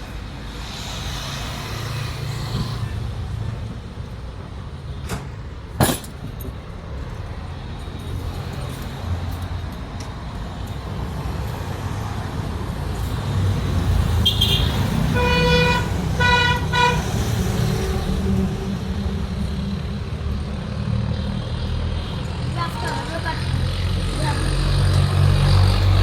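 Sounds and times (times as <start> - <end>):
road traffic rumbling: 0.0 - 26.0
vehicle horn tooting: 14.2 - 17.1.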